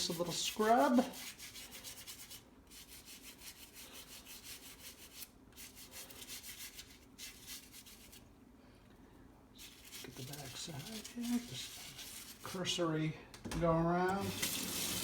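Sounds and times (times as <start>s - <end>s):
toothbrush scrubbing metal: 0.0s - 8.2s, 9.6s - 12.6s.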